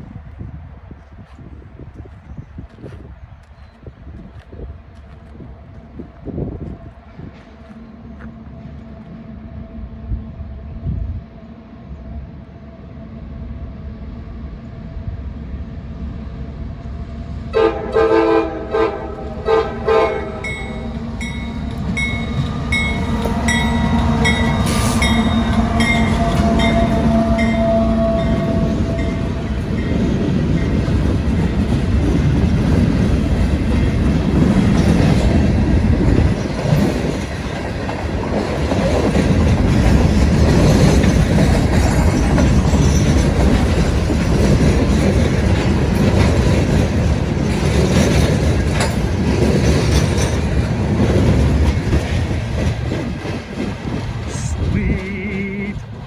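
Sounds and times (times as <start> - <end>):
train wheel noise: 0.0 - 56.0
locomotive engine rumble: 16.6 - 56.0
train horn blasts: 17.5 - 30.2.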